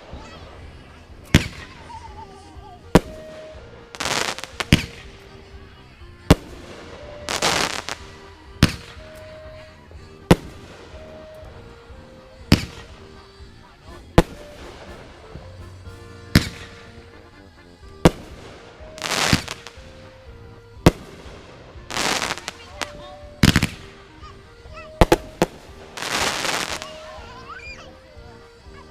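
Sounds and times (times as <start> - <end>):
crackling firework bursts: 3.0 - 5.3, 6.3 - 9.0, 18.0 - 20.1, 20.9 - 24.0, 25.0 - 27.3
firework bangs: 7.3 - 9.0, 13.9 - 17.4, 20.9 - 23.9, 25.0 - 27.0.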